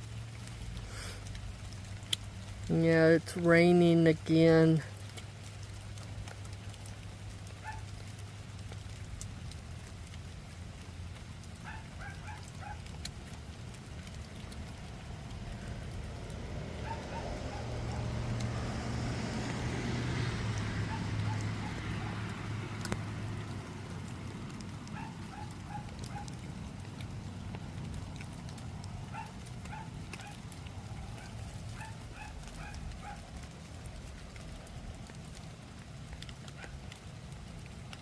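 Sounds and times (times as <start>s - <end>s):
steady rain falling: 0.0s - 38.0s
vehicle passing: 13.5s - 35.9s.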